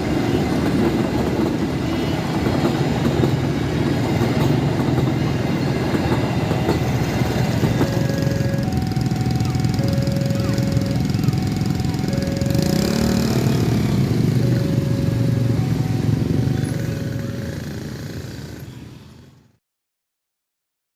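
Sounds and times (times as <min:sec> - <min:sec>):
engines running: 0:00.0 - 0:18.8
two-tone crossing alarm: 0:04.3 - 0:18.3.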